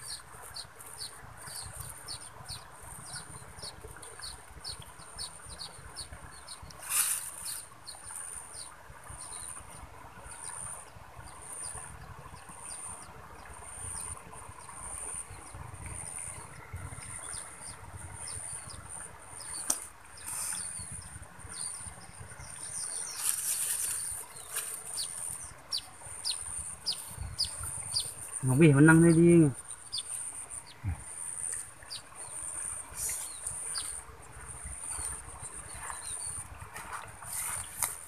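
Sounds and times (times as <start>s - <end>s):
field insects chirping: 10.2s - 37.7s.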